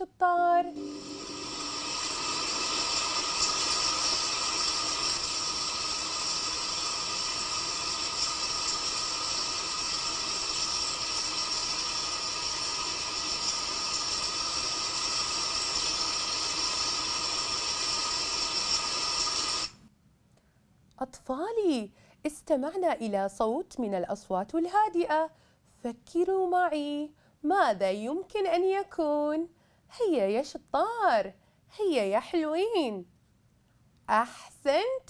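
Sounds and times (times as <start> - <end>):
rain falling steadily: 0.9 - 19.7.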